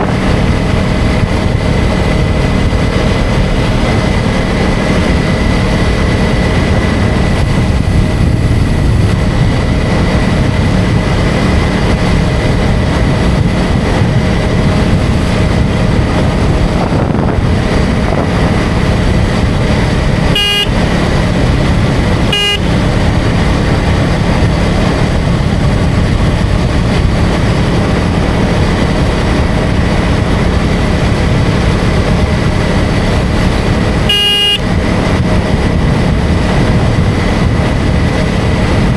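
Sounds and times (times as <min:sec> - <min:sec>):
motorcycle engine cruising: 0:00.0 - 0:38.9
wind rushing: 0:00.0 - 0:38.9
horn toots: 0:20.2 - 0:21.3, 0:22.2 - 0:23.1, 0:33.9 - 0:34.8.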